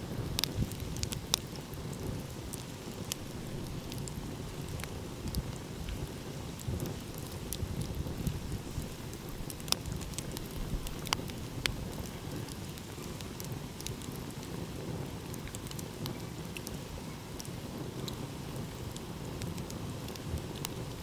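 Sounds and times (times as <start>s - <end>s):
wood fire crackling: 0.0s - 21.0s
sharp fire pops: 0.1s - 16.8s.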